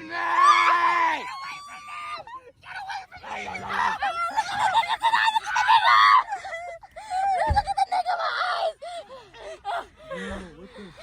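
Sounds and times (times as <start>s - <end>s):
people screaming in fright: 0.0s - 10.3s
dull low thump: 7.4s - 7.8s.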